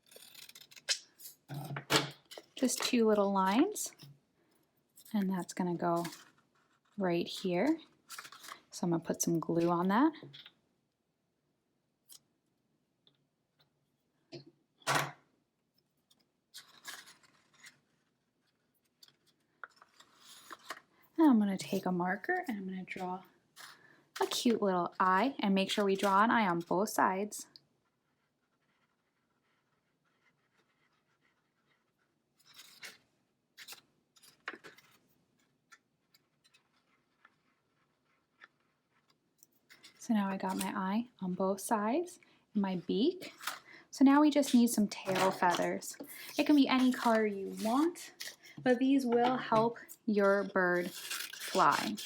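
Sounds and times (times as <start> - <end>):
paper rustling: 6.0 - 8.7, 16.5 - 20.9, 33.6 - 40.8, 44.4 - 52.0.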